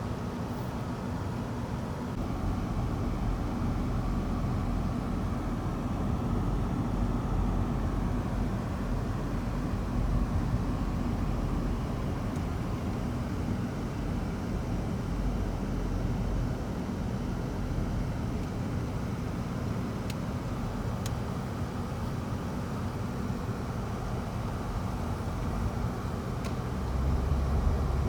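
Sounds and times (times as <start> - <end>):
vehicle and road rumble: 0.0 - 28.0.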